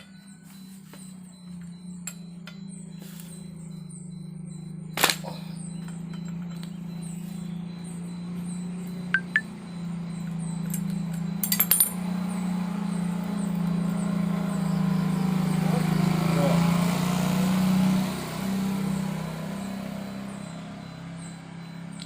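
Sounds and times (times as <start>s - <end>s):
low engine-like hum: 0.0s - 22.0s
metallic clinks on blade: 10.6s - 12.0s.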